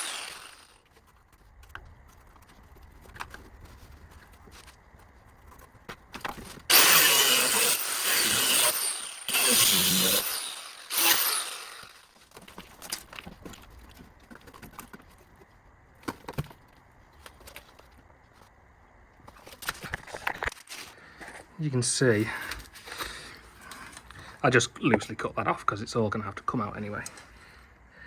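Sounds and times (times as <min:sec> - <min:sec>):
angle grinder cutting steel: 0:00.0 - 0:00.8, 0:06.7 - 0:12.1.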